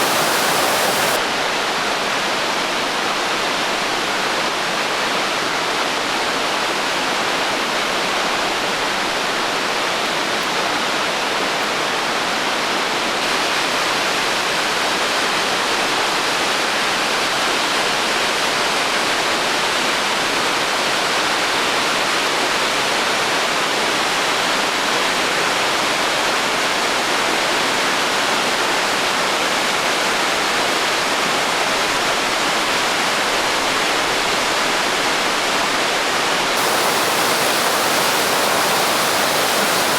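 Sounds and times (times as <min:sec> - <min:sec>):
waterfall rushing: 0:00.0 - 0:01.2, 0:36.6 - 0:39.9.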